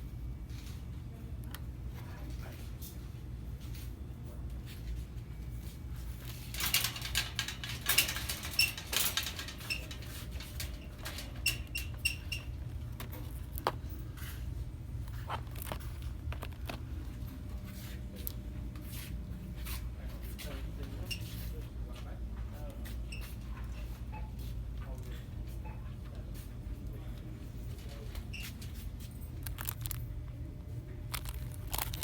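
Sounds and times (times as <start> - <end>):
steady low hum: 0.0 - 32.0
objects rustling and clicking: 6.2 - 19.8, 27.7 - 30.2, 31.1 - 32.0.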